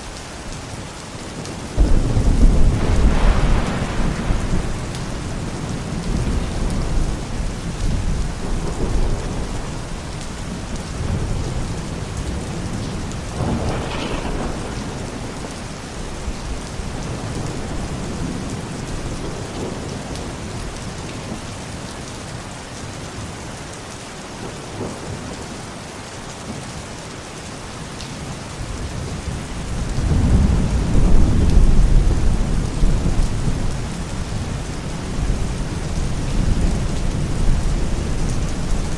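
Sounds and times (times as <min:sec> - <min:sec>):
steady rain falling: 0:00.0 - 0:38.9
thunder rumbling: 0:01.7 - 0:20.5, 0:29.0 - 0:38.9
sharp thunder crack: 0:01.8 - 0:05.2, 0:13.4 - 0:15.6.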